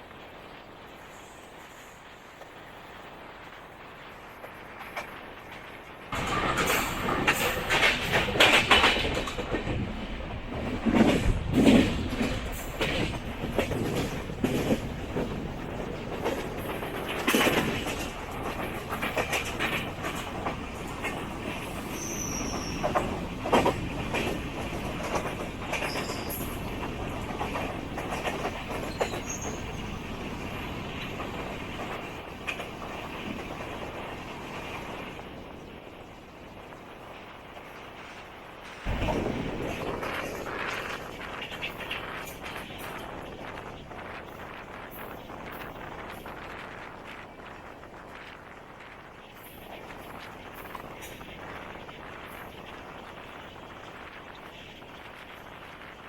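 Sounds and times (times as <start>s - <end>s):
train running rumble: 0.0s - 56.0s
wheels clattering over rail joints: 4.4s - 34.9s, 38.0s - 48.2s.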